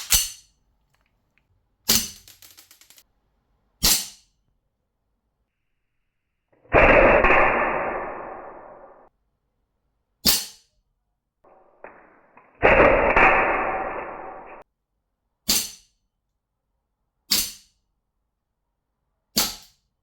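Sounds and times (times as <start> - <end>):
loud noise: 6.7 - 9.1.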